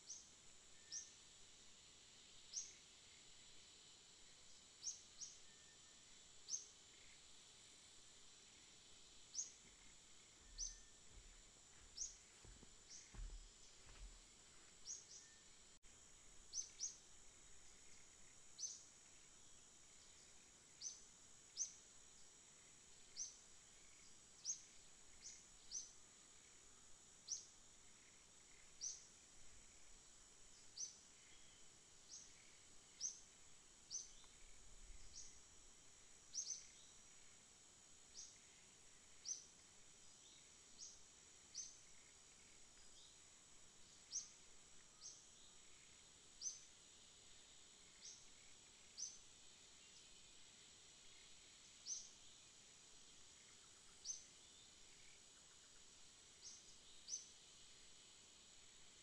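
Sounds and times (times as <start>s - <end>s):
faint high-pitched hiss: 0.0s - 59.0s
bird chirping: 9.3s - 14.2s
faint low thumps: 9.6s - 14.3s.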